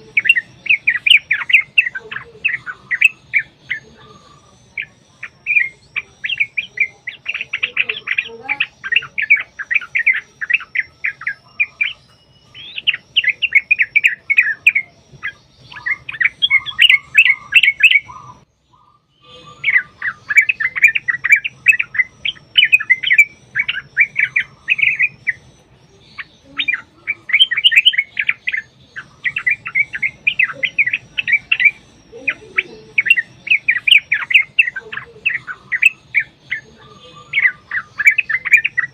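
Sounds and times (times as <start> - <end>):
bird singing chattering notes: 0.0 - 38.9.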